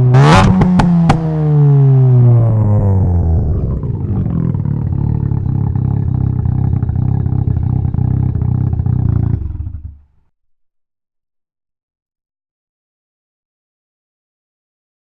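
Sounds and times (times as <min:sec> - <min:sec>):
rotary engine idling: 0:03.6 - 0:10.1.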